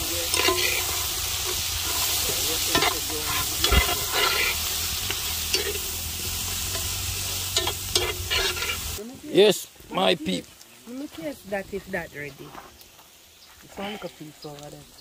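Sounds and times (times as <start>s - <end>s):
utensil scraping a pot: 0.0s - 9.0s
food sizzling in a pot: 0.0s - 15.0s.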